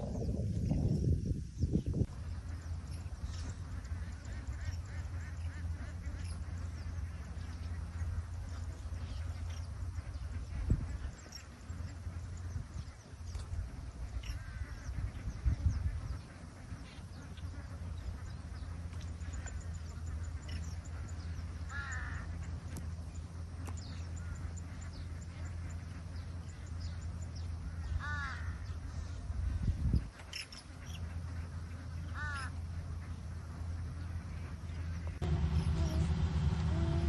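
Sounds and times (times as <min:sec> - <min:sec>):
steady low rumble: 0:00.0 - 0:37.0
harsh caw-like bird calls: 0:14.1 - 0:17.7, 0:20.3 - 0:22.6, 0:27.6 - 0:29.2, 0:31.9 - 0:33.1.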